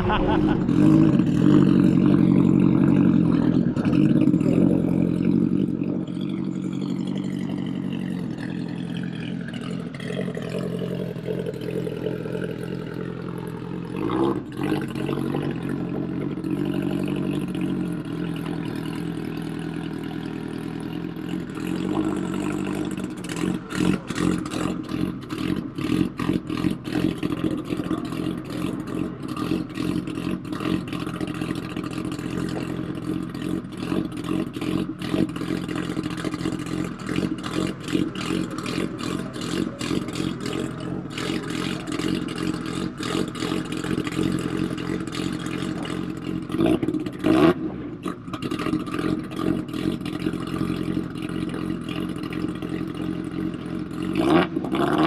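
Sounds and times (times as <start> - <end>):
loud race car engines: 0.0 - 55.0
engine pops and cracks: 23.0 - 55.0.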